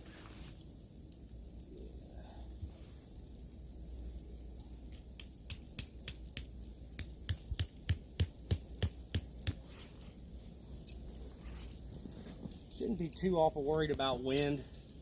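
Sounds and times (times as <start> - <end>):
tent stake being hammered: 5.2 - 9.6.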